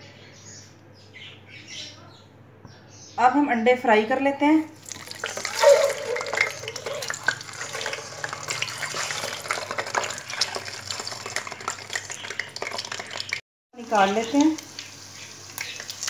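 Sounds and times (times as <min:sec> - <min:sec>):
eggs sizzling in hot oil: 0:04.8 - 0:16.0.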